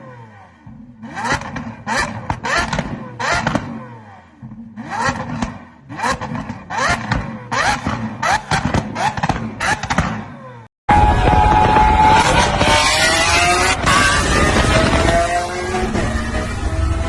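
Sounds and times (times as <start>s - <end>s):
car engine revving: 0.0s - 17.0s
exhaust crackling pops: 10.9s - 16.2s.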